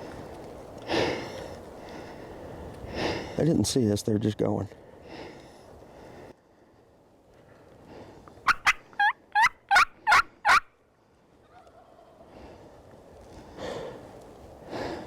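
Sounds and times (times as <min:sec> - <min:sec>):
wild turkey yelping: 0:08.5 - 0:10.7.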